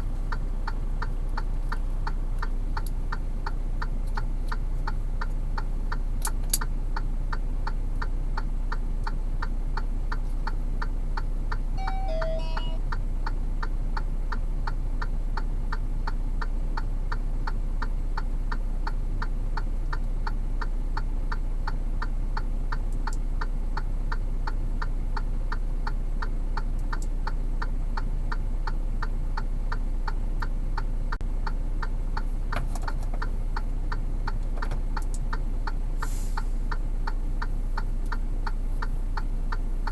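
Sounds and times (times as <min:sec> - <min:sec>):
falling chirp of tones: 0:11.8 - 0:12.8.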